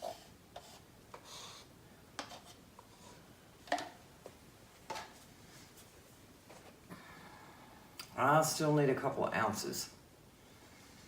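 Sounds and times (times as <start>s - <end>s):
soft rustle: 4.2s - 6.9s.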